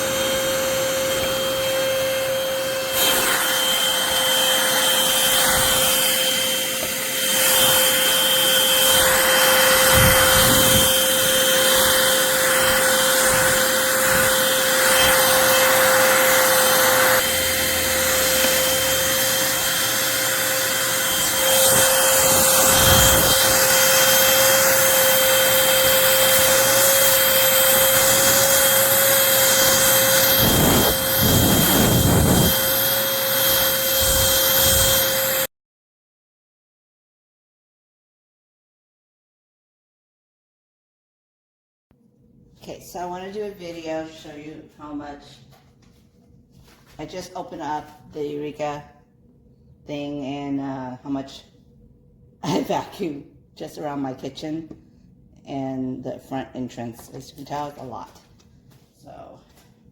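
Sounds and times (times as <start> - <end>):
vacuum cleaner running: 0.0 - 35.5.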